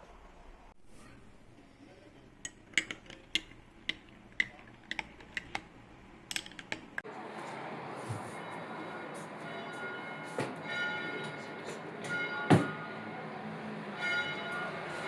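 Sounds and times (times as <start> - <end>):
kitchenware clicking and tapping: 2.3 - 7.0.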